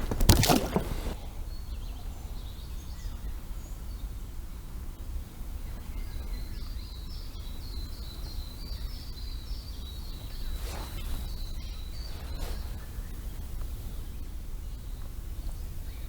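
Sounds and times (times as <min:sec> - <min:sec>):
brief knock or rustle: 0:00.0 - 0:01.2.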